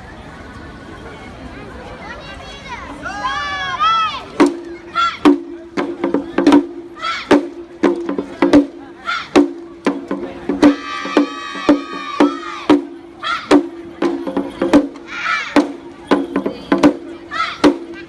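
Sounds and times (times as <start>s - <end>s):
high shouted calls: 3.2s - 5.4s, 6.2s - 7.4s, 9.0s - 9.5s, 10.6s - 18.0s
drum beats: 4.4s - 18.0s.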